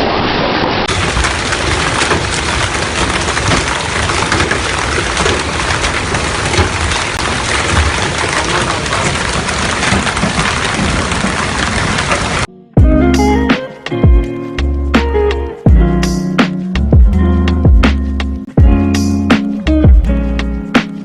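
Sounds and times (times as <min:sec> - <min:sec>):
hail and heavy rain pelting: 0:00.9 - 0:12.5.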